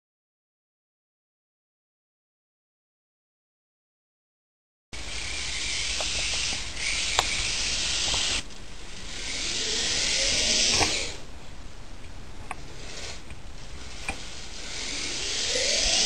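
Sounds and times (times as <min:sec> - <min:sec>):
electric toy car motor whirring: 0:05.0 - 0:11.2, 0:12.8 - 0:16.0.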